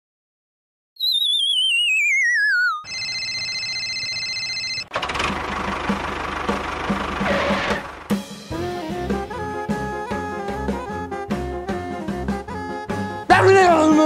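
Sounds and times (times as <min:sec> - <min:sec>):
wobbling whistle sliding down: 0:01.0 - 0:02.9
small tractor engine chugging: 0:04.9 - 0:08.2.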